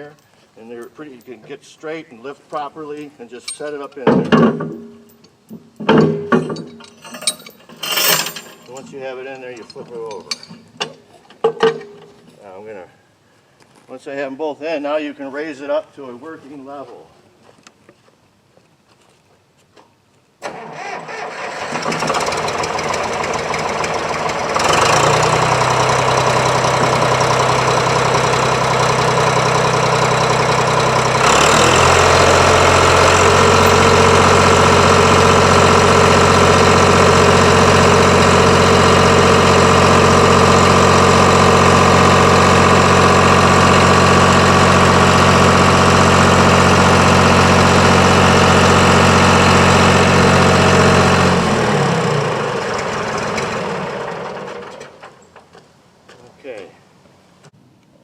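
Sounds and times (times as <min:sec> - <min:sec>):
front loader engine running: 0:21.4 - 0:55.4.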